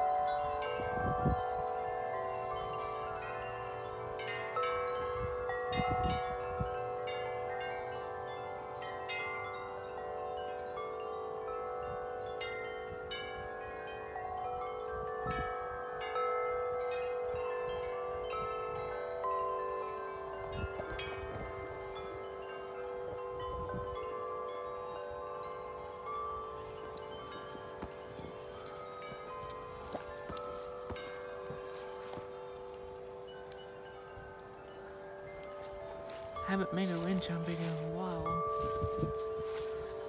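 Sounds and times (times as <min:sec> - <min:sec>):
wind chimes ringing: 0:00.0 - 0:40.0
gusty wind: 0:00.6 - 0:03.6, 0:38.2 - 0:40.0.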